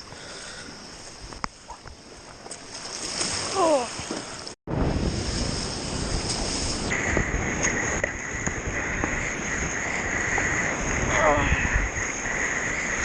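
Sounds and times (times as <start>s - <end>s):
sea water rushing: 2.6s - 13.0s
wind rushing: 4.7s - 13.0s.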